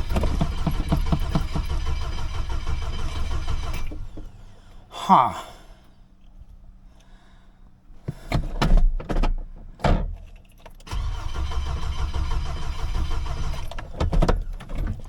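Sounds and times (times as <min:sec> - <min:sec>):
engine cranking without starting: 0:00.0 - 0:04.6, 0:10.4 - 0:15.0.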